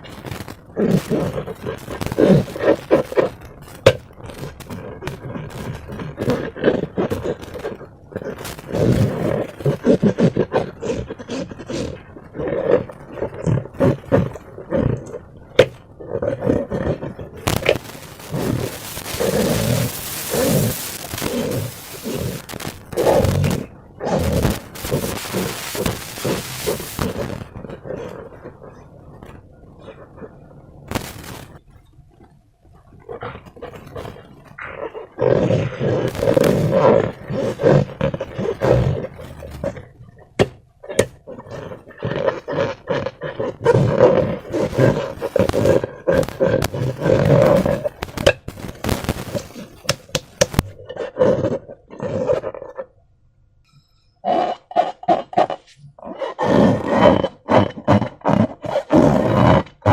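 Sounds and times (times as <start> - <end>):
steady hiss: 0.0 - 6.4, 8.3 - 10.1, 17.4 - 27.9, 30.8 - 31.6, 35.2 - 39.8, 43.8 - 50.7
slime squelching: 0.0 - 50.9
sharp clicks: 17.4 - 23.6.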